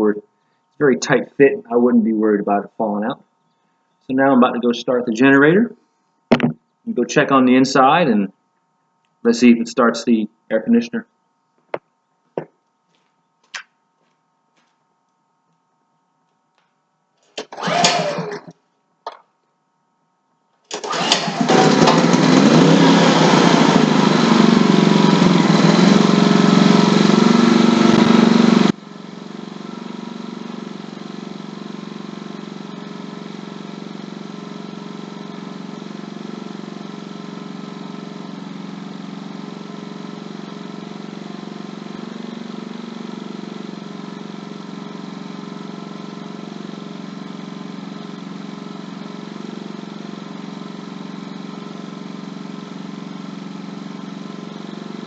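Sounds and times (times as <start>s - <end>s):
generator engine running: 6.3s - 7.2s, 17.4s - 18.5s, 20.7s - 55.0s.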